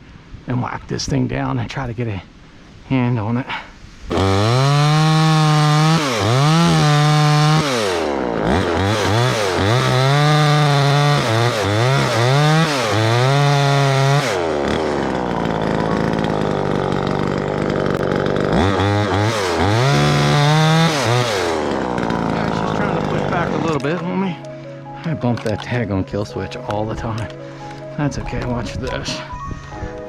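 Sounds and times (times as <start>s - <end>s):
chainsaw revving: 4.1s - 24.0s.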